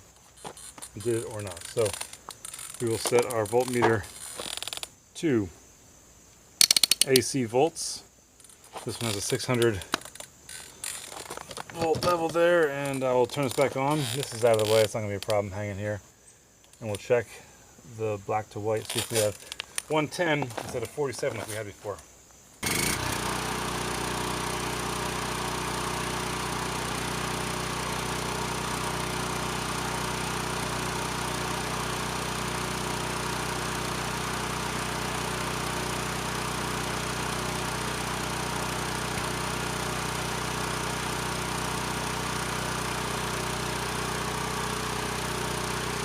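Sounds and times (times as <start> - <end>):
generator engine running: 0.7 - 4.1, 11.1 - 14.8, 22.6 - 46.0.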